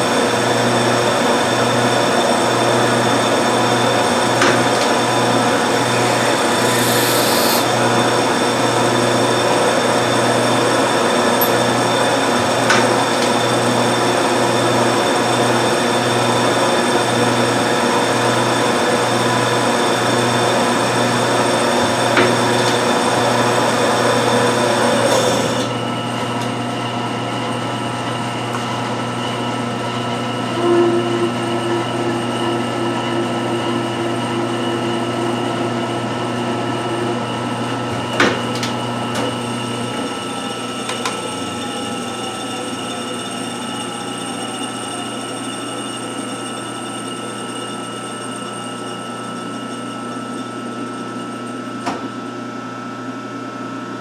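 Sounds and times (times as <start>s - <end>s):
lathe running with mechanical hum: 0.0s - 54.0s
high hiss: 6.2s - 7.7s.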